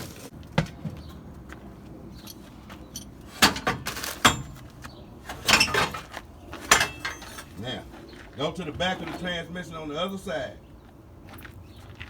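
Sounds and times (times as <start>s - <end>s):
metal tools clinking and clanking: 2.2s - 4.7s, 5.3s - 7.7s.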